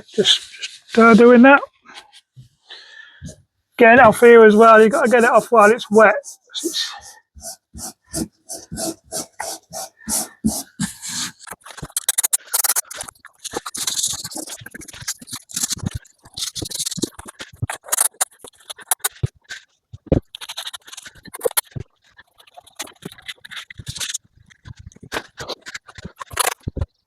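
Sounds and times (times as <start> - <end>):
carpet tiles scraping and knocking: 3.2 - 27.0
spray adhesive hissing: 6.2 - 11.4.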